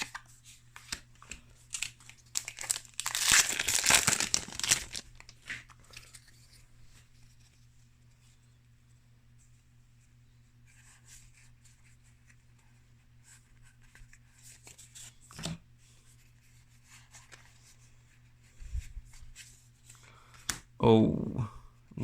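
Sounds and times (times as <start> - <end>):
steady low hum: 15.1 - 22.0.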